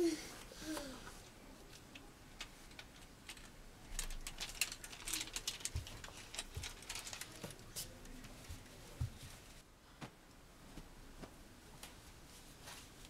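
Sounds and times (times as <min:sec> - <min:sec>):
fabric rustling: 0:04.2 - 0:13.0.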